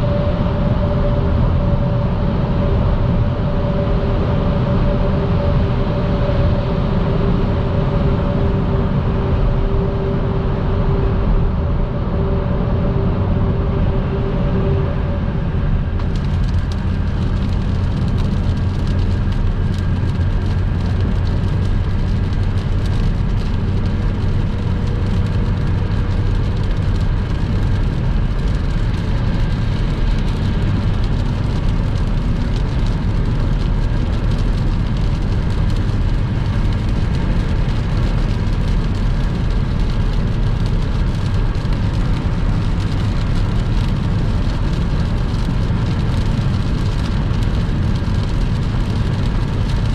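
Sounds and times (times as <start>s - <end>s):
car engine and tyre rumble: 0.0s - 49.9s
rain hiss and patter: 16.0s - 49.9s.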